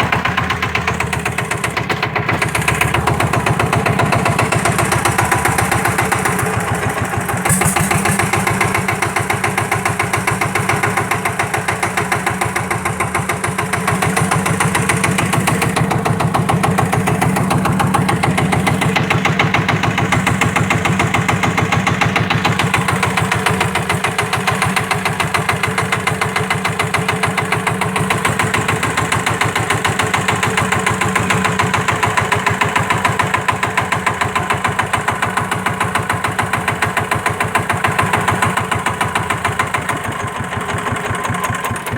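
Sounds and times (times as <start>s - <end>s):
small engine running steadily: 0.0s - 41.9s.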